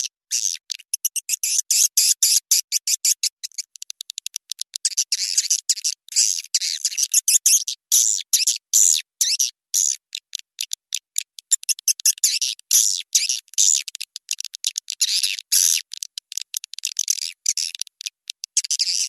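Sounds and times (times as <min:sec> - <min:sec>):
high-pitched bird chirps: 0:00.0 - 0:04.2, 0:04.8 - 0:10.0, 0:11.4 - 0:13.9, 0:18.5 - 0:19.0.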